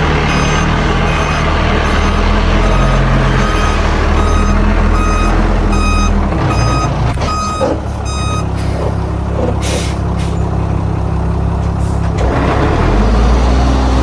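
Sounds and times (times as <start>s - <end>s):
diesel engine running: 0.0s - 14.0s
reversing alarm beeping: 0.3s - 9.0s.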